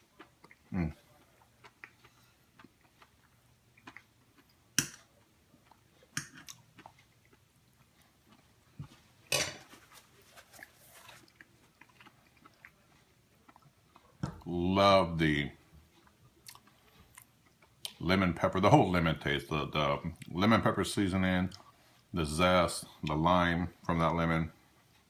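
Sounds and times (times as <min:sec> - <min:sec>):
person chewing: 0:00.0 - 0:14.5, 0:15.8 - 0:18.0, 0:21.5 - 0:22.1.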